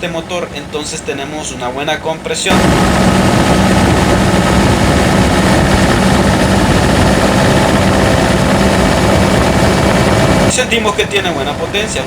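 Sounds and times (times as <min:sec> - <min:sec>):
diesel engine droning under load: 0:02.5 - 0:12.0.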